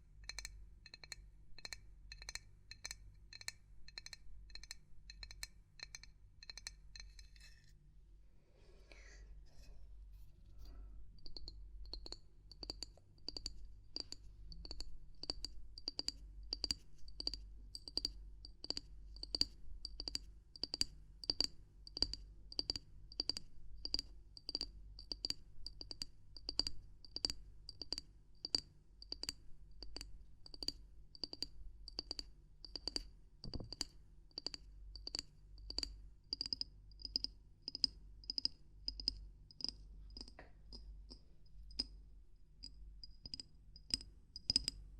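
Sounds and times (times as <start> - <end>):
knocking on small hard object: 32.8 - 35.8.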